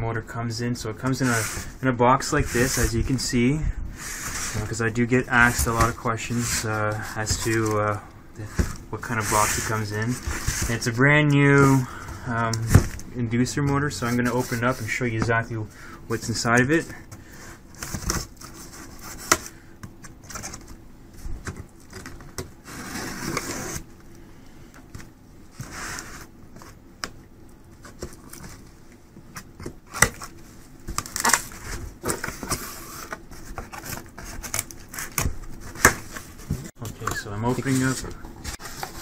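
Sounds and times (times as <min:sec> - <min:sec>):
cardboard scraping and rubbing: 0:01.2 - 0:03.2, 0:04.0 - 0:11.9, 0:14.0 - 0:14.9, 0:21.9 - 0:23.9, 0:25.5 - 0:26.8, 0:37.4 - 0:39.0.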